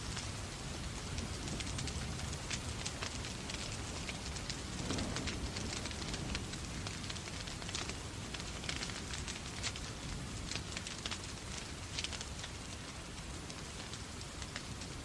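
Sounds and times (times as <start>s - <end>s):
rain hiss: 0.0s - 15.0s
wood fire crackling and popping: 0.0s - 15.0s.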